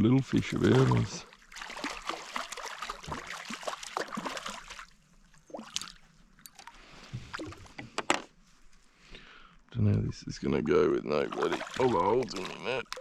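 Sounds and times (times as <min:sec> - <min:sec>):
water splashing beside kayak: 0:00.4 - 0:07.8, 0:11.2 - 0:13.0.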